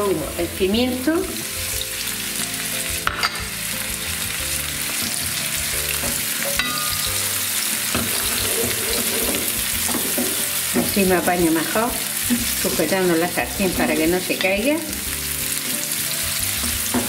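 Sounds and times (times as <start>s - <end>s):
vegetables sizzling in frying pan: 0.0s - 17.0s
wooden spatula stirring: 7.8s - 12.8s.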